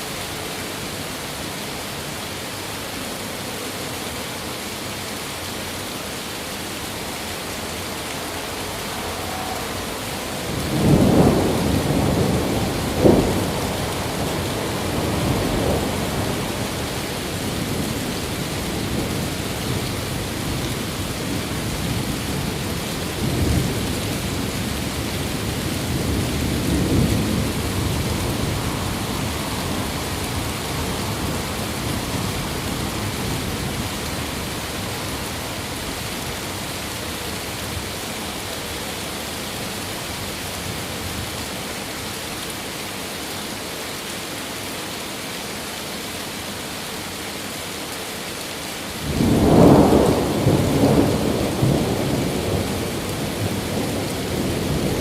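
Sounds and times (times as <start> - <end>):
steady rain: 0.0 - 55.0
thunder rumbling and cracking: 8.7 - 35.7, 49.0 - 55.0.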